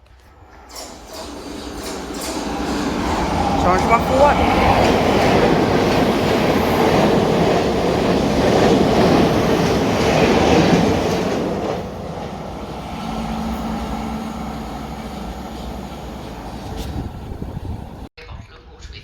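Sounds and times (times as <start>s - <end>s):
train rumbling past: 0.0s - 18.1s
wheel clatter: 0.4s - 13.6s.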